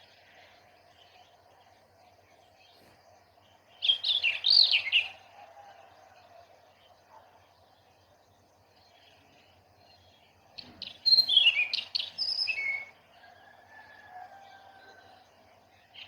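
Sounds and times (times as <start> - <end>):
faint background birdsong: 0.0 - 16.0
songbird chirps and whistles: 10.6 - 13.0.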